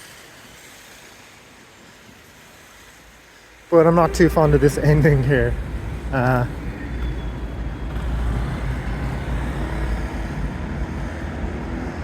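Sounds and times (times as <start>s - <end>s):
cars and buses passing: 3.7s - 12.0s.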